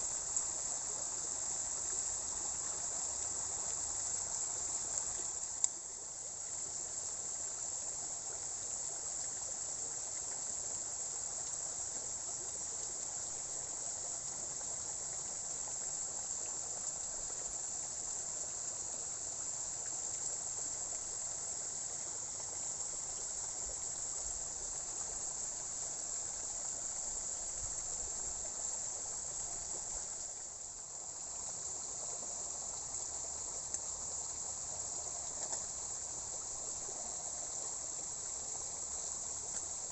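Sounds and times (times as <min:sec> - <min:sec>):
faint hiss: 0:00.0 - 0:39.9
insects chirring: 0:00.0 - 0:39.9.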